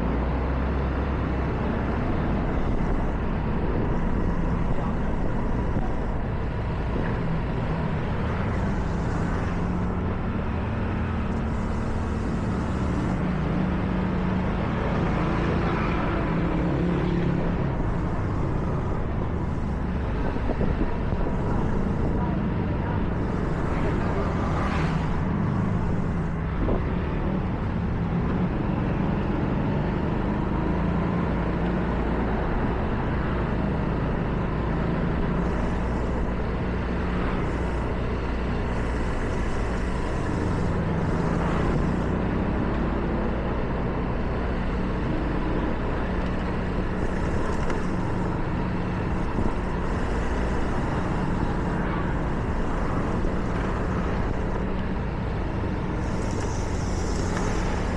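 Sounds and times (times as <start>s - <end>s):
car engine and road drone: 0.0s - 57.9s
tyre hiss on wet road: 7.7s - 9.9s, 11.4s - 13.2s, 23.2s - 26.4s, 35.2s - 42.2s, 44.5s - 54.7s, 55.9s - 57.9s.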